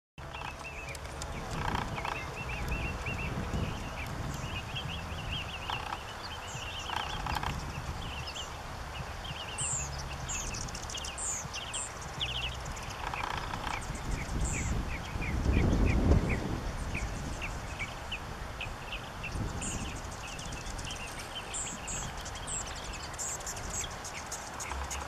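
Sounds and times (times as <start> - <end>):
steady low rumble: 0.2 - 18.0
small birds chirping: 0.2 - 25.0.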